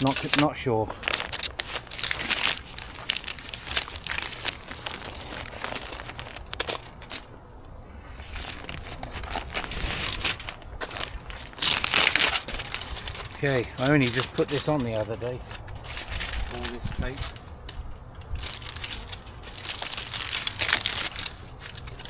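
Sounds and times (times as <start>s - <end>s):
crinkling handling noise: 0.0s - 22.0s.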